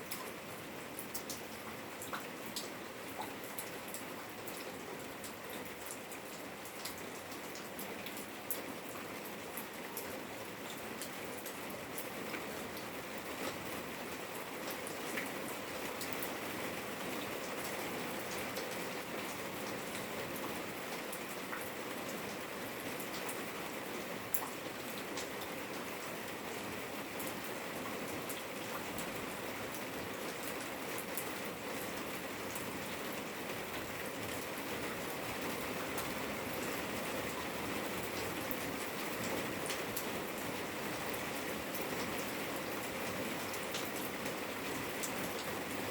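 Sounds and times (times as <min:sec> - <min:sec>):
rain drops pattering on hard surfaces: 0:00.0 - 0:45.9
steady rain hiss: 0:00.0 - 0:45.9.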